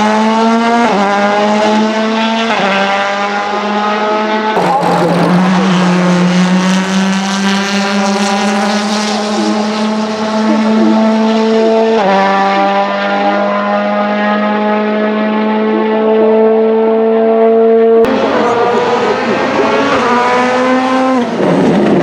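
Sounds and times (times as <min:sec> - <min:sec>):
rally car engine accelerating: 0:00.0 - 0:22.0
engine upshift: 0:18.0 - 0:22.0
rough burst of noise: 0:18.1 - 0:22.0.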